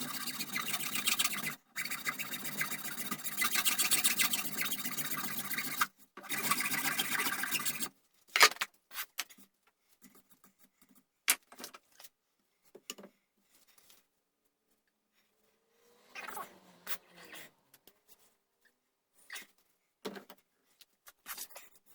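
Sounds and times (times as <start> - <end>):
tool scraping wood: 0.0 - 7.9.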